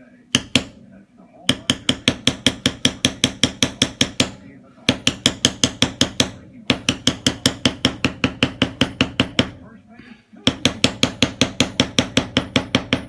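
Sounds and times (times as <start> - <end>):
mallet tapping stamping tool on leather: 0.4 - 0.8, 1.5 - 9.6, 10.4 - 13.0.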